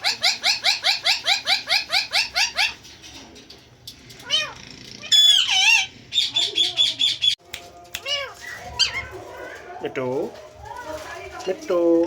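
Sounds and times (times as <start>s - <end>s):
parrot chirping rapidly: 0.0s - 2.8s, 4.4s - 7.4s.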